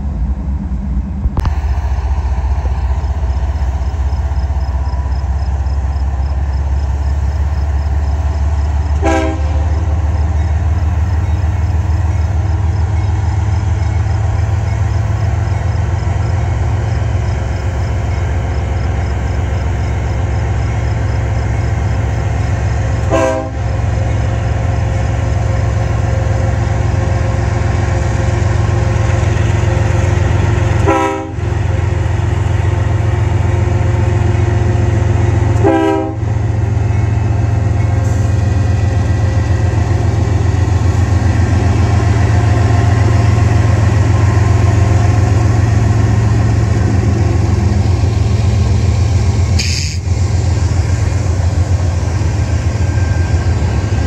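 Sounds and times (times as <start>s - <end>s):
diesel locomotive engines droning: 0.0s - 54.0s
train horn: 8.8s - 10.0s, 22.9s - 24.0s, 29.8s - 32.0s, 35.2s - 36.6s
crossing bell ringing: 36.4s - 40.5s.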